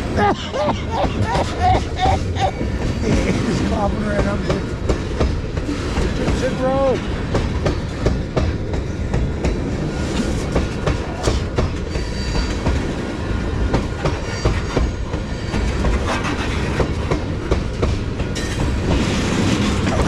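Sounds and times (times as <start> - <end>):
train rumble: 0.0 - 20.0
train wheels clacking over joints: 0.2 - 20.0.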